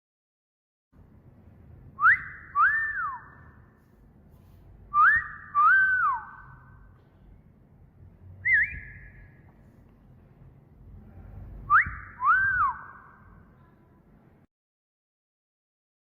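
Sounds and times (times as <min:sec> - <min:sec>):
wolf whistles: 0:02.0 - 0:03.5, 0:04.9 - 0:06.6, 0:08.4 - 0:09.3, 0:11.7 - 0:13.1
short wavering whistle: 0:02.0 - 0:03.6, 0:04.9 - 0:06.8, 0:08.4 - 0:09.4, 0:11.6 - 0:13.3.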